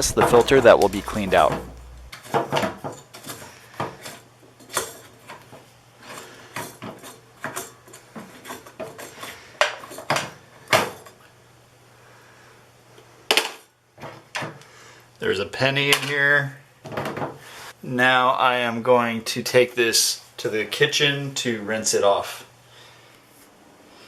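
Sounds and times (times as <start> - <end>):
faint low hum: 0.0 - 2.2.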